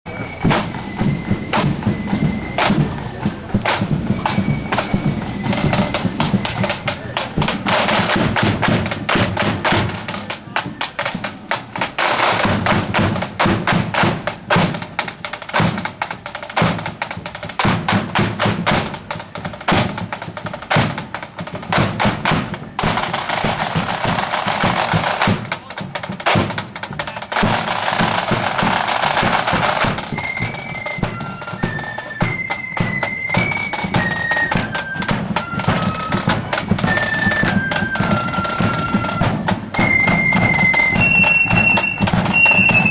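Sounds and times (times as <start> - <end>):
high flute melody: 0.1 - 11.1, 27.1 - 42.9
marching drums beat: 0.1 - 42.9
snare drum rolls: 0.1 - 42.9.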